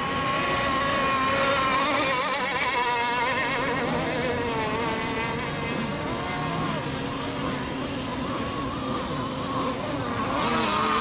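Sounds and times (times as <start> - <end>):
model boat motors whining: 0.0 - 11.0.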